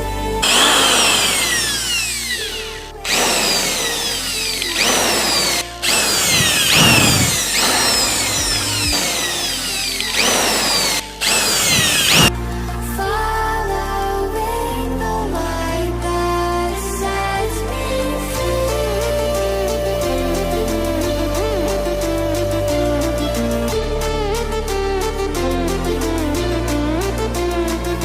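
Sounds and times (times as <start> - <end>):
electric power tool whining: 0.4 - 12.3.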